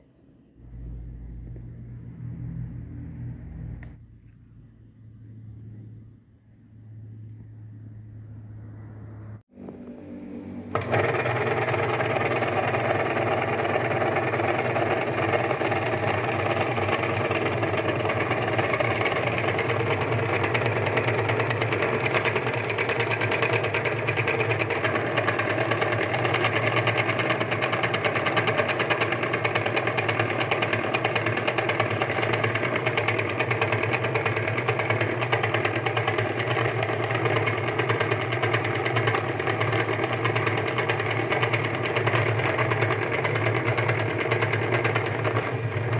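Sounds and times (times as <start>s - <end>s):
electric meat grinder motor: 10.7s - 45.9s.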